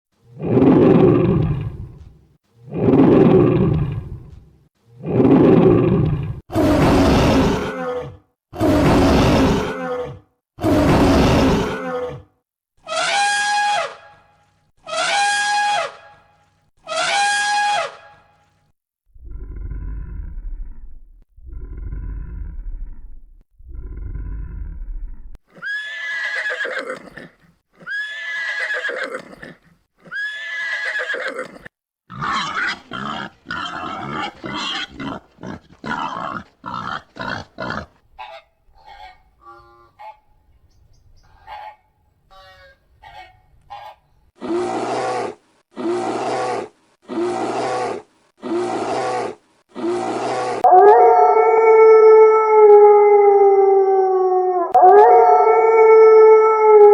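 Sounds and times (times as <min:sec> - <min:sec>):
high arching animal calls: 0:12.8 - 0:14.1, 0:14.8 - 0:16.2, 0:16.8 - 0:18.3
low farm animal calls: 0:32.1 - 0:40.5, 0:41.2 - 0:44.1.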